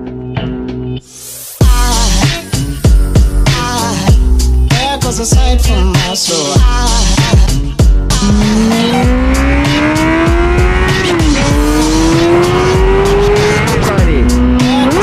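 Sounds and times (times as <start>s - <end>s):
hip-hop beat: 0.1s - 15.0s
motorcycle engine accelerating: 8.1s - 15.0s.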